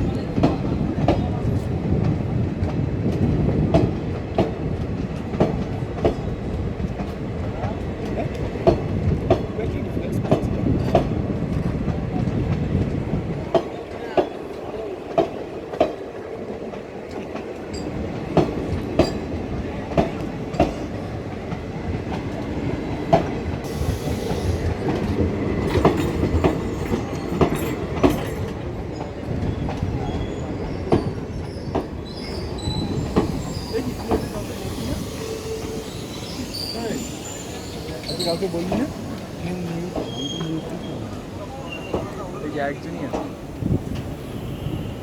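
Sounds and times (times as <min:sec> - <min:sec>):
train rumble: 0:00.0 - 0:45.0
train wheels clicking over rail joints: 0:00.0 - 0:45.0
faint wheel squeal: 0:30.0 - 0:39.0, 0:40.0 - 0:42.4.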